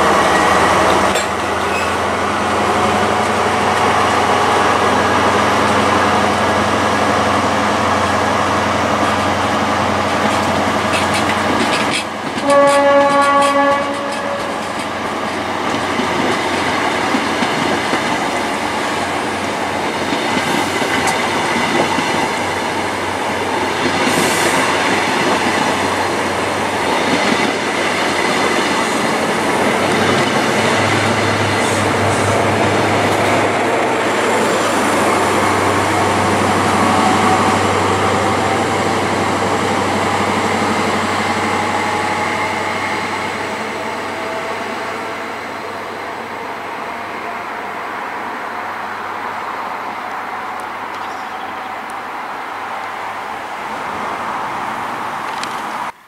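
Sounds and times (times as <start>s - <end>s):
train rolling on rails: 0.0s - 56.0s
train horn blast: 12.4s - 14.7s.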